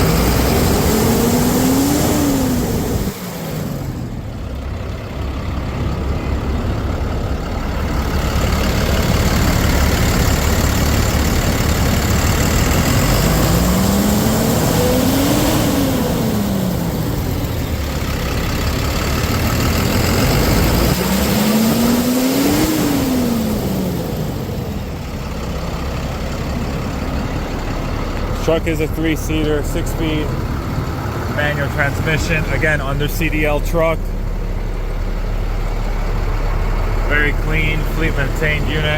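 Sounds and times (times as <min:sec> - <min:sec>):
diesel truck engine revving: 0:00.0 - 0:38.9.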